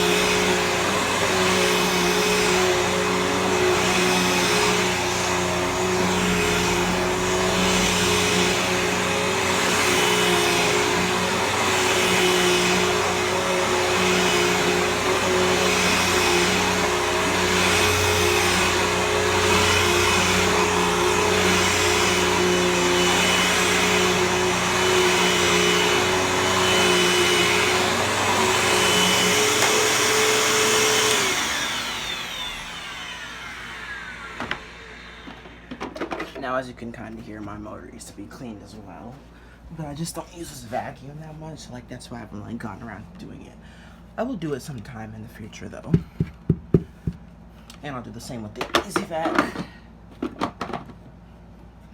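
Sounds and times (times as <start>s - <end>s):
vacuum cleaner motor whine: 0.0s - 36.3s
person talking: 36.3s - 43.6s, 47.8s - 49.7s.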